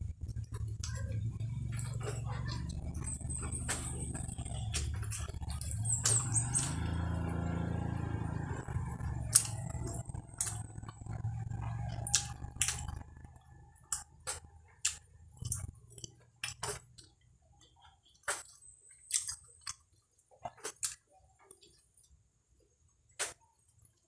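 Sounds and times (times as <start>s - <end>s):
low hum: 0.0s - 14.4s
crunchy chewing: 0.0s - 22.2s.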